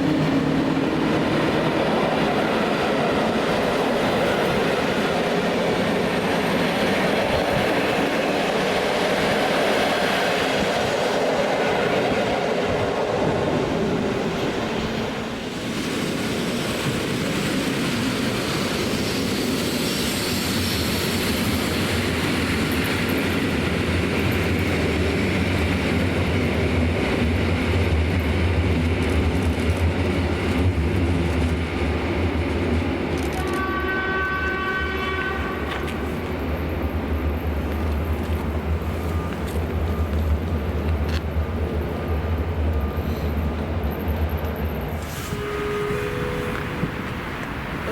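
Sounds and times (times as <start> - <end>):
train wheels on rails: 0.0 - 47.9
train horn two notes: 33.4 - 36.0, 45.1 - 47.9.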